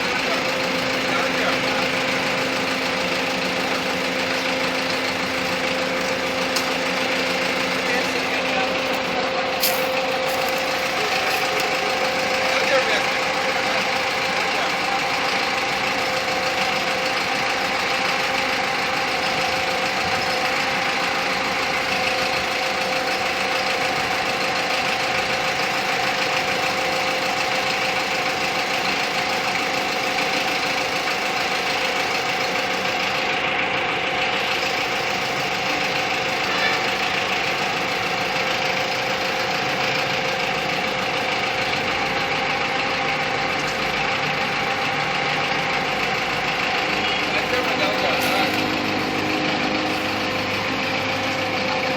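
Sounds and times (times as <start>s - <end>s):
steady whine: 0.0s - 18.8s, 34.6s - 51.9s
truck diesel engine running: 0.0s - 51.9s.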